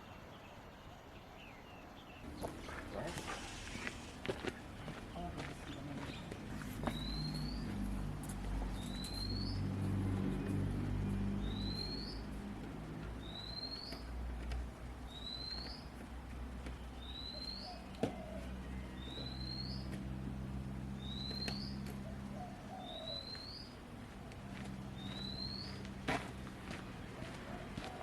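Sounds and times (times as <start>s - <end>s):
bird whistling: 6.6s - 7.8s, 8.7s - 9.6s, 11.4s - 12.3s, 13.2s - 14.0s, 15.1s - 15.8s, 17.0s - 19.9s, 21.0s - 23.7s, 25.0s - 25.8s.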